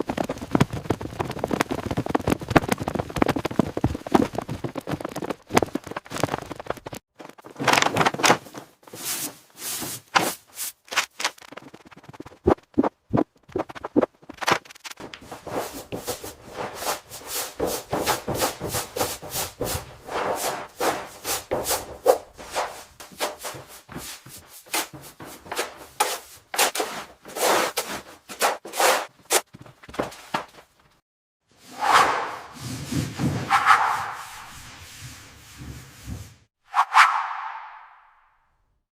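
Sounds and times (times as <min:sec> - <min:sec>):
scraping and rubbing strokes: 0:08.5 - 0:29.5, 0:31.6 - 0:38.1.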